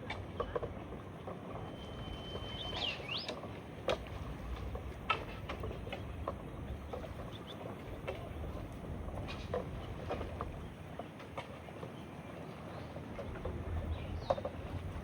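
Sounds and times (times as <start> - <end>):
water lapping and dripping: 0.0 - 15.0
low steady rumble: 12.3 - 15.0.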